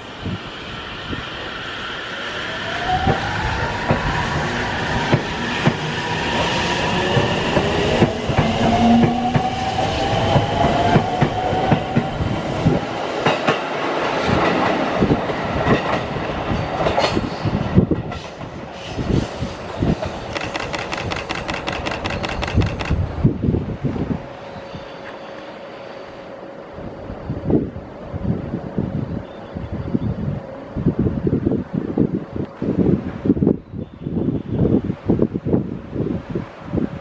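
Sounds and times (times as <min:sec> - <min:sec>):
train wheels clattering over joints: 0:15.7 - 0:23.0.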